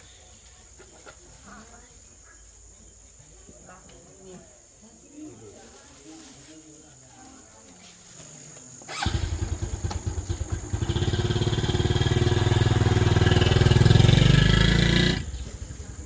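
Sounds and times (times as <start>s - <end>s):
small motorcycle engine running: 8.9s - 16.0s.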